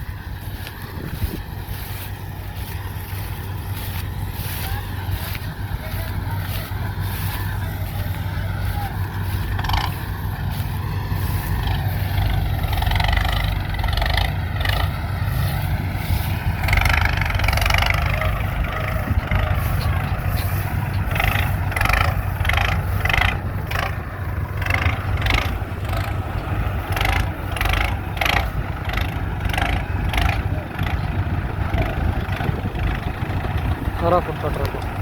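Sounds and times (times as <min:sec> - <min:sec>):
tractor diesel engine rumbling: 0:00.0 - 0:35.0.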